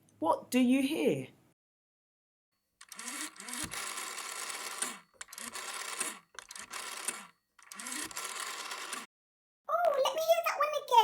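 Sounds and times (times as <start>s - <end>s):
rotary phone dial whirring and clicking: 2.8s - 9.1s.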